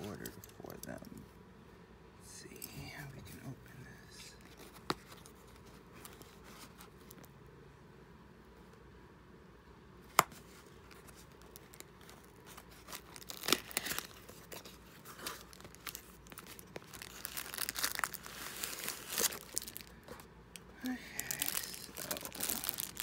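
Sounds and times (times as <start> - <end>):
packaging tearing and crinkling: 10.4 - 20.0, 20.8 - 23.0.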